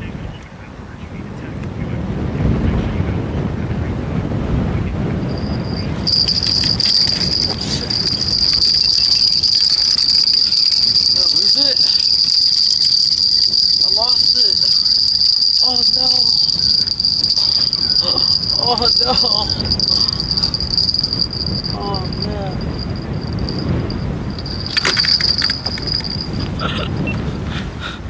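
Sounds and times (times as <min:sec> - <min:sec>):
fishing reel drag buzzing: 0:05.3 - 0:26.4.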